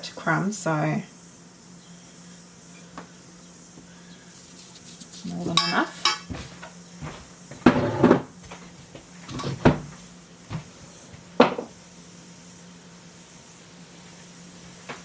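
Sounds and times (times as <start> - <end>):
containers knocking on bench: 7.6 - 8.3, 11.4 - 11.7.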